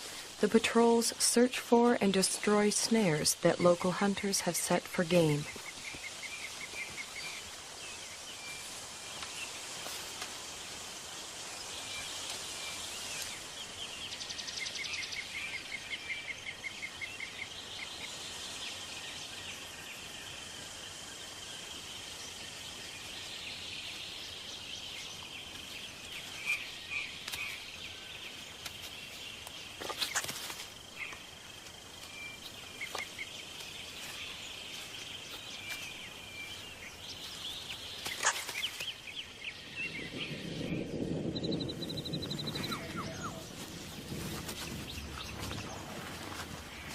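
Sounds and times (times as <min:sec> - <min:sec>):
bird chirps and calls: 0:32.0 - 0:44.0.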